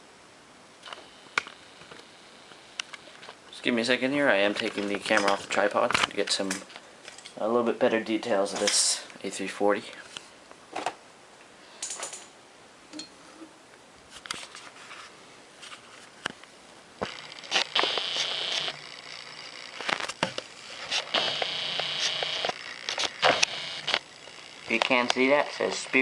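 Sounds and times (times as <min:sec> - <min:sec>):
steady hissing whir: 0:00.0 - 0:07.0, 0:16.3 - 0:26.0.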